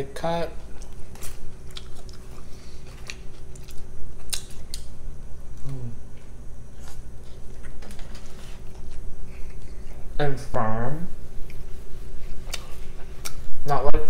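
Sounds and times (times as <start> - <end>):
person chewing with wet smacks: 0.7 - 5.0, 5.6 - 7.9, 8.6 - 10.1, 12.4 - 13.5.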